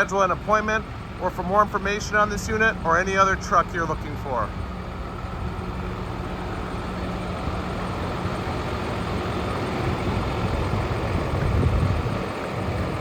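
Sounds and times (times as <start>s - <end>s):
diesel truck idling: 0.0s - 13.0s.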